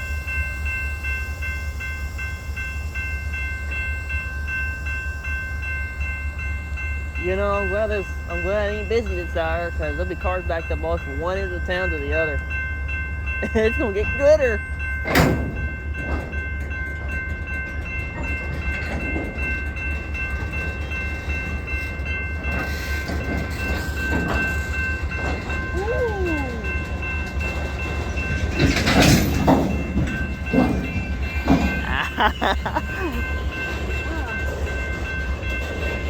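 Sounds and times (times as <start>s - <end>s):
train rumbling: 0.0s - 36.0s
high-pitched tones: 25.5s - 27.0s.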